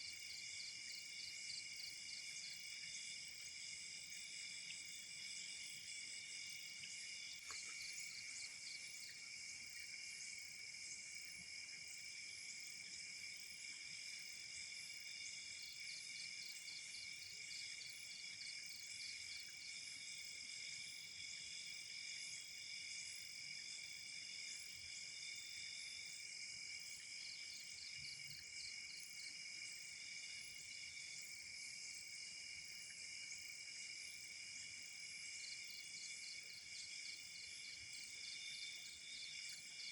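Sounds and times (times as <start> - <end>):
crickets trilling: 0.0 - 16.5.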